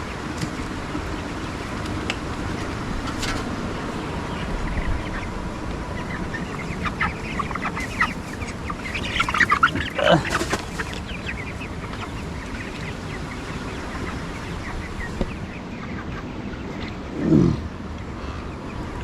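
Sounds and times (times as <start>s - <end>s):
chickens clucking and calling: 0.0s - 19.0s.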